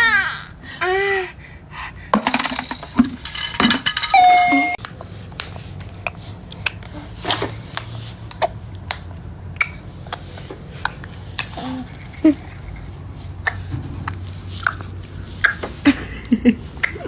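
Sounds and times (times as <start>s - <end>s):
baby mouth clicks and smacks: 4.8s - 7.0s, 7.7s - 12.0s, 13.4s - 15.7s, 16.8s - 17.0s.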